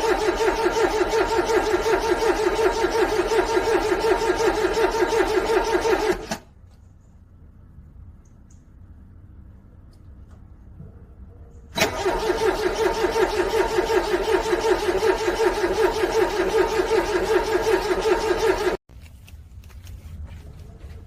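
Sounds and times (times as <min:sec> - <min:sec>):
car starter motor cranking: 0:00.0 - 0:06.5, 0:11.8 - 0:18.8.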